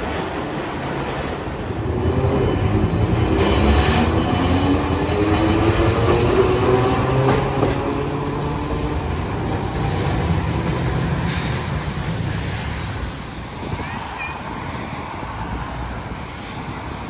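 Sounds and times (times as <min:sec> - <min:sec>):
streetcar motor whine: 0:00.0 - 0:13.6
wheels rumbling on rails: 0:00.0 - 0:17.0.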